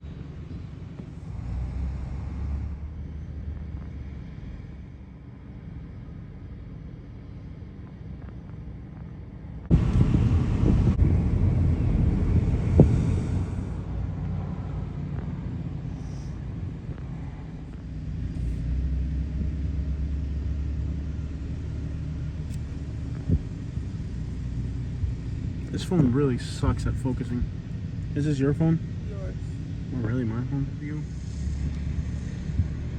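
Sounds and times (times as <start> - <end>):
low outdoor rumble: 0.0 - 32.9
wind buffeting microphone: 9.7 - 19.9, 22.2 - 25.9, 31.1 - 32.9.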